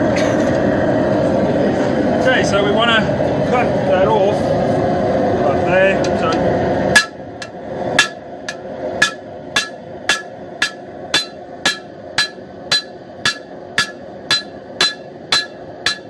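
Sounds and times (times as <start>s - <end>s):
hammer striking steel on anvil: 6.9s - 16.0s.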